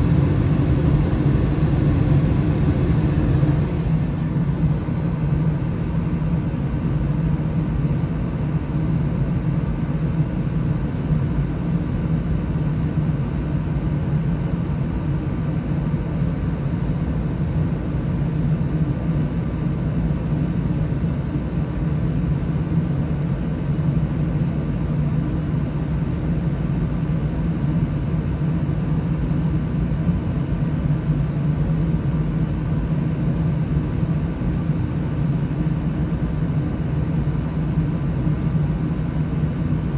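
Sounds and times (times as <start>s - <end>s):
gas furnace rumbling: 0.0s - 5.7s.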